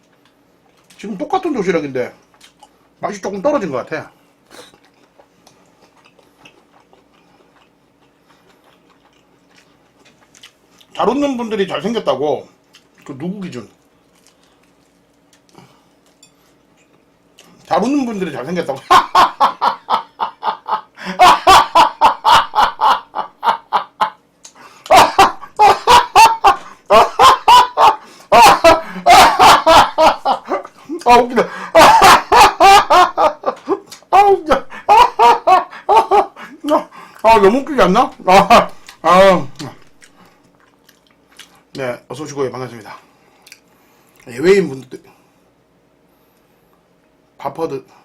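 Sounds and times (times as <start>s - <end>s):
faint chewing of food: 0.0s - 1.1s, 2.2s - 3.0s, 4.3s - 11.0s, 12.5s - 17.7s, 39.6s - 41.8s, 43.0s - 45.2s
man laughing hard: 18.8s - 24.2s, 24.9s - 37.0s.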